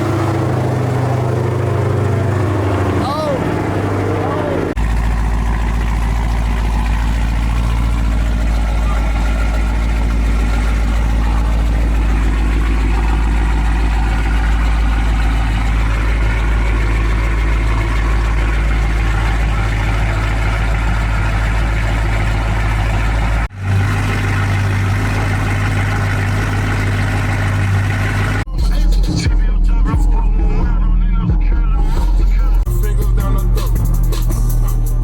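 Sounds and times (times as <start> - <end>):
car engine idling: 0.0 - 35.0
deep hum: 0.0 - 35.0.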